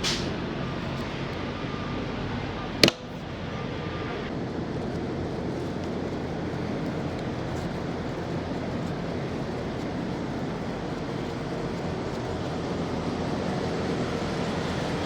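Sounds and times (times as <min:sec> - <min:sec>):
sharp click: 0:02.8 - 0:03.1.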